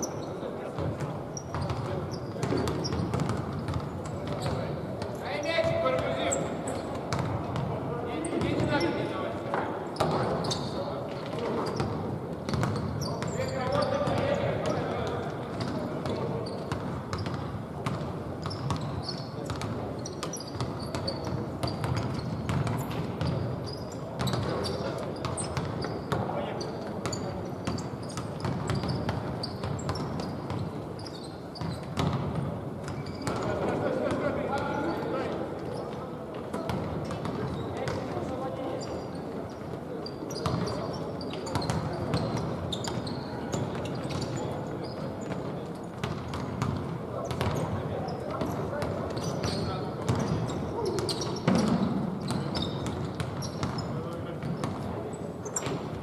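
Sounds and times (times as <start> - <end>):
shoe squeaks: 0.0 - 0.5, 1.3 - 7.3, 9.9 - 14.8, 15.5 - 32.2, 32.8 - 33.6, 38.7 - 46.6, 47.2 - 55.9
basketball bouncing on court: 0.8 - 4.6, 6.9 - 7.8, 10.0 - 10.6, 11.3 - 14.8, 15.5 - 23.5, 24.2 - 26.3, 27.0 - 30.8, 31.6 - 33.5, 36.5 - 38.1, 40.4 - 40.9, 41.5 - 44.4, 45.2 - 54.9.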